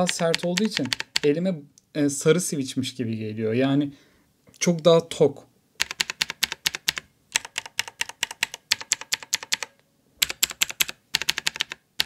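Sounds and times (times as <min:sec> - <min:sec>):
mechanical keyboard switch clicking: 0:00.0 - 0:01.3, 0:05.8 - 0:11.8.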